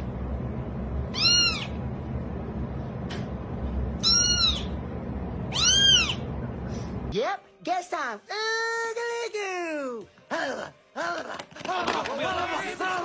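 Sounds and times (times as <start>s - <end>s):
low background rumble: 0.0s - 7.1s
cat meowing: 1.1s - 1.8s, 4.0s - 4.7s, 5.5s - 6.2s.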